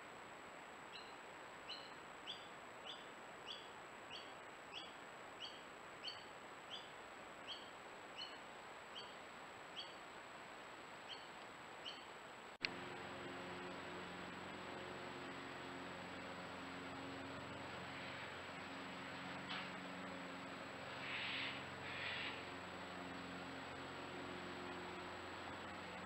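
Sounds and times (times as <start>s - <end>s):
bird chirping: 0.9s - 10.0s, 11.0s - 12.1s, 16.3s - 22.7s
low hum: 12.4s - 26.0s.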